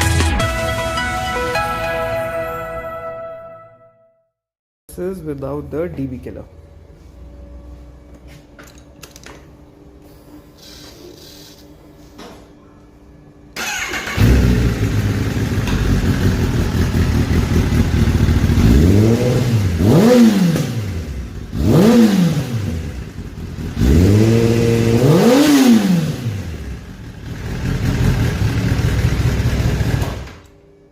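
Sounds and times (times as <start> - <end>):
motorcycle engine starting and revving: 13.6 - 30.5.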